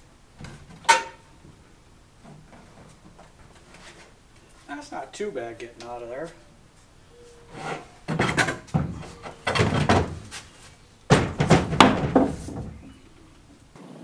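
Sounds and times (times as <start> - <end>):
wooden boards knocking: 8.0 - 10.5, 11.1 - 13.0.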